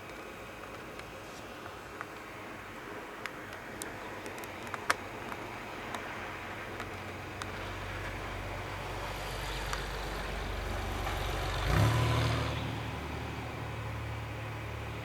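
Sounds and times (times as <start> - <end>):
vehicle engine: 6.2 - 15.0.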